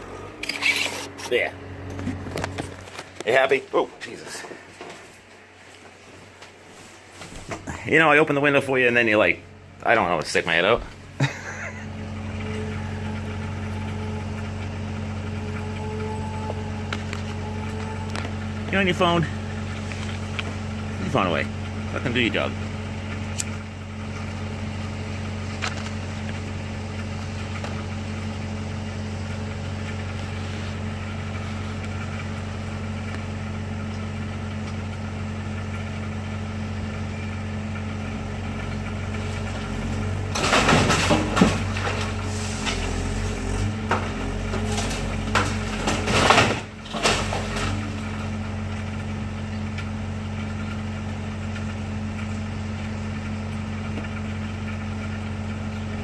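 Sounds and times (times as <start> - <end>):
engine idling: 0.0 - 5.1, 7.6 - 56.0
timber structure cracking and crashing: 39.1 - 48.8.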